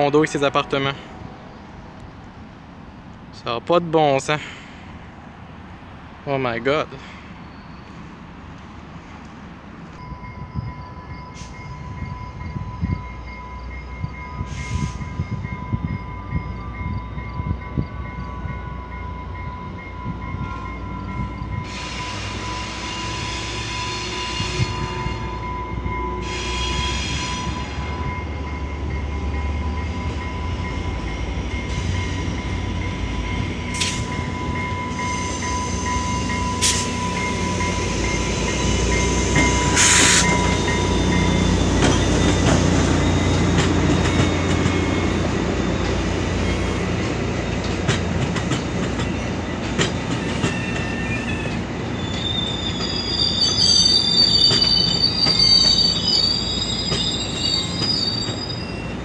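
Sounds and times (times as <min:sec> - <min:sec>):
train wheels rumbling: 0:00.0 - 0:59.0
high-pitched wheel squeal: 0:34.9 - 0:46.9, 0:50.2 - 0:59.0.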